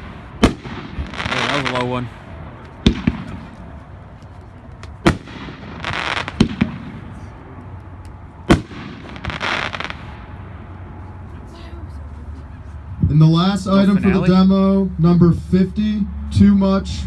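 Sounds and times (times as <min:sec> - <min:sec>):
firework hissing crackle: 0:00.0 - 0:02.1, 0:05.0 - 0:07.3, 0:08.5 - 0:10.2
firework bangs: 0:00.0 - 0:07.4, 0:08.4 - 0:10.8.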